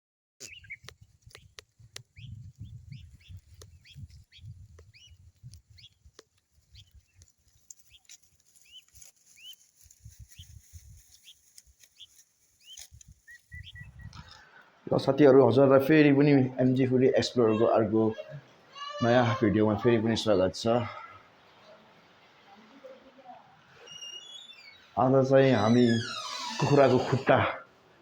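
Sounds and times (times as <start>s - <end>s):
faint bird chirps: 12.0s - 14.2s, 23.7s - 26.8s.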